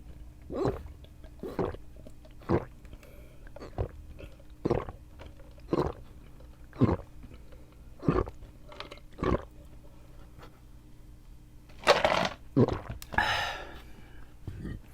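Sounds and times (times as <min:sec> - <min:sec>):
person gulping a drink: 0:00.0 - 0:09.7, 0:11.9 - 0:13.3.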